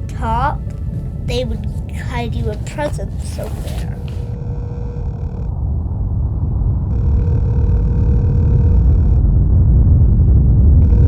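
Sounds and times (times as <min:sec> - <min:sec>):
faint steady tone: 0:00.0 - 0:05.6, 0:06.9 - 0:09.3
low rumbling drone: 0:00.0 - 0:11.0.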